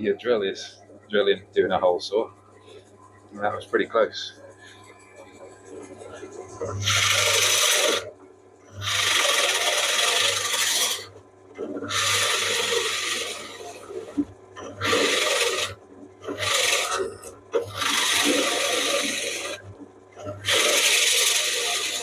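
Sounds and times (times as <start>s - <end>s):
drill motor humming: 6.8s - 8.1s, 8.7s - 11.1s, 11.8s - 22.0s
hole saw grinding plywood: 6.8s - 8.1s, 8.8s - 22.0s.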